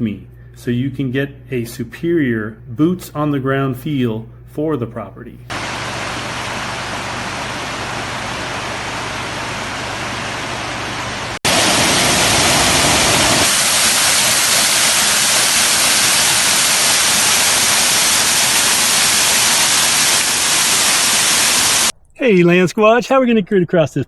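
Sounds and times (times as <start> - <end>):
waterfall rushing: 5.5 - 21.9.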